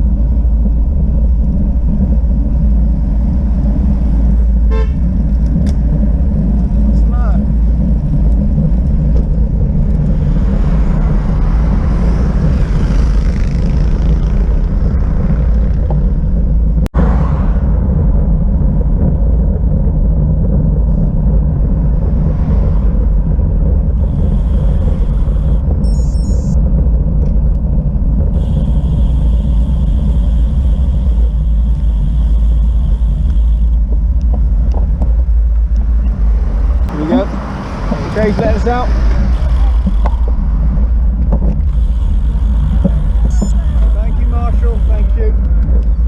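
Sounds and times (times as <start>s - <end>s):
tyre and road noise: 0.0s - 46.0s
wind rumble on microphone: 0.0s - 46.0s
tyre and road hiss: 28.4s - 33.8s, 41.6s - 45.5s.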